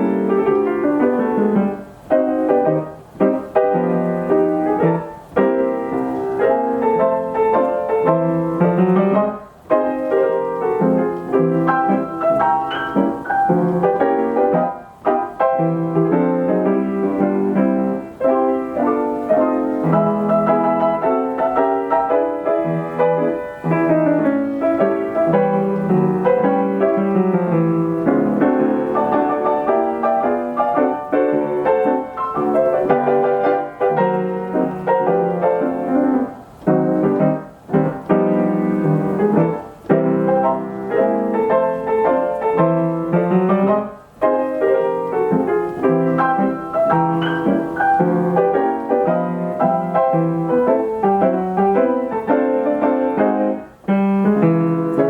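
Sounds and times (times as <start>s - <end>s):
player piano playing song medley: 0.0s - 55.0s.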